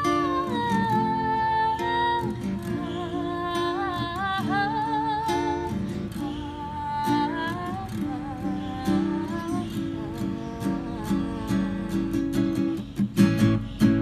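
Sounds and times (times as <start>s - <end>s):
person singing long notes: 0.0s - 12.8s
acoustic guitar strumming: 0.0s - 14.0s.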